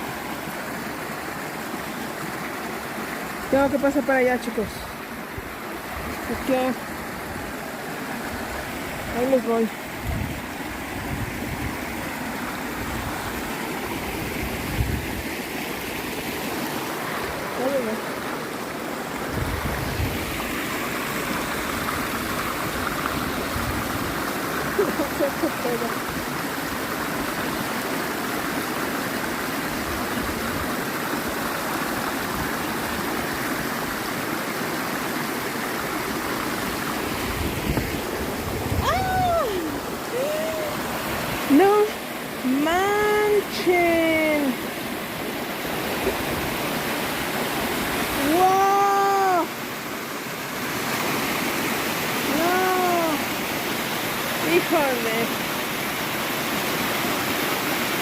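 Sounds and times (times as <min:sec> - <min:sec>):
river water rushing: 0:00.0 - 0:58.0
voice exclamation: 0:38.8 - 0:40.8, 0:52.3 - 0:53.2.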